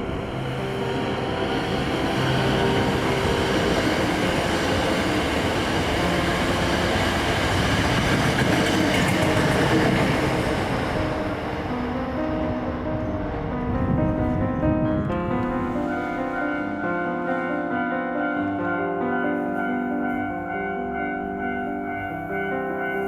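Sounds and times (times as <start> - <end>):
train wheels clattering on rails: 1.1 - 11.9.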